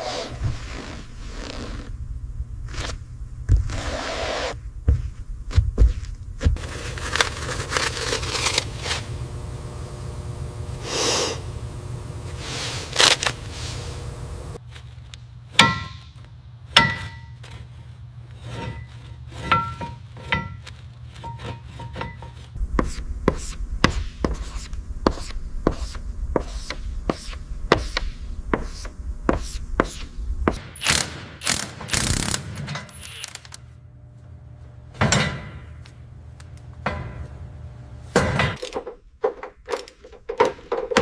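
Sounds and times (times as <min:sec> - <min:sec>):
hand tool scraping and rubbing: 0:12.3 - 0:14.5, 0:17.4 - 0:32.3.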